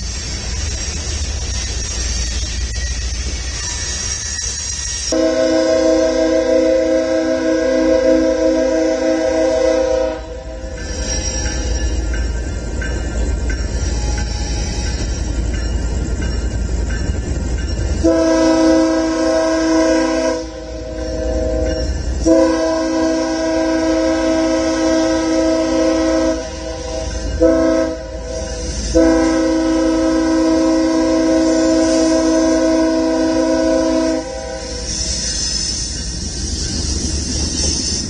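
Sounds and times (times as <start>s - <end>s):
low rumble of passing train: 0.0s - 38.0s
locomotive air horn: 5.1s - 10.8s, 18.0s - 35.0s.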